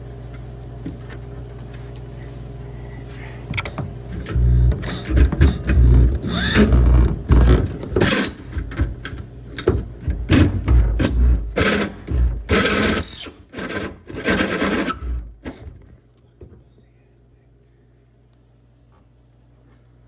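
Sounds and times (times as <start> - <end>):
power drill cutting sheet metal: 4.8 - 7.0, 11.0 - 15.2.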